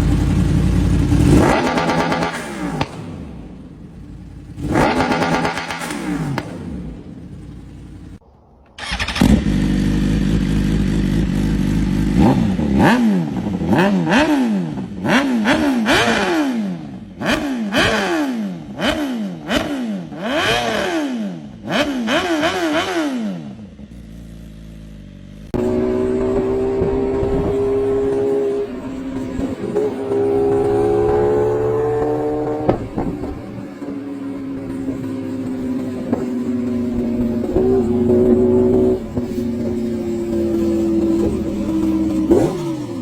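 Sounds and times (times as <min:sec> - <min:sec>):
motorcycle engine revving: 0:00.0 - 0:08.2, 0:08.8 - 0:43.0.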